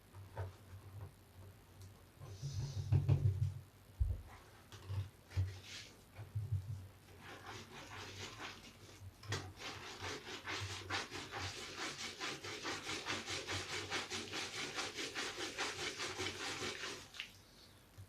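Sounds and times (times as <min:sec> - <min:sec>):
sponge rubbing strokes: 0:05.3 - 0:06.1, 0:07.1 - 0:17.4.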